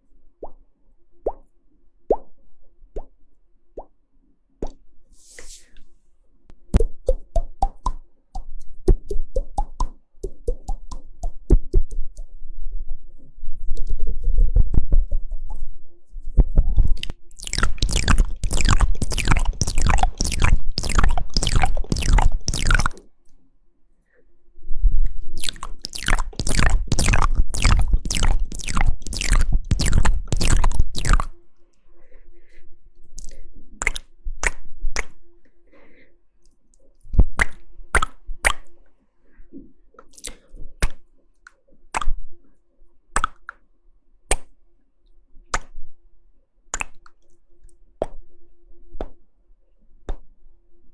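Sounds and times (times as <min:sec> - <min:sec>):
wet tongue and lip clicks: 0:06.5 - 0:12.3, 0:16.8 - 0:23.1, 0:25.4 - 0:31.4, 0:33.1 - 0:35.2, 0:36.7 - 0:38.8, 0:40.0 - 0:42.2, 0:43.2 - 0:43.6, 0:44.3 - 0:44.6, 0:45.5 - 0:45.8, 0:46.7 - 0:48.2.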